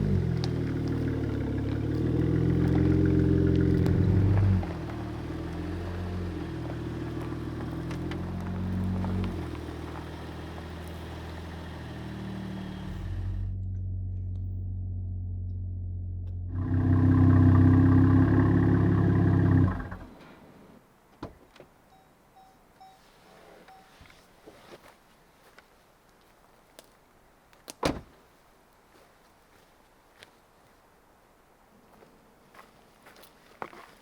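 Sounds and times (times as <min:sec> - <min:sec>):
truck engine running: 0:00.0 - 0:20.2.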